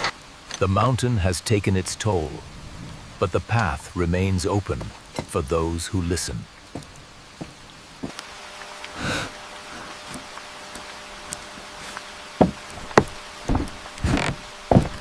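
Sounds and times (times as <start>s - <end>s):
sharp knocks: 12.4s - 15.0s.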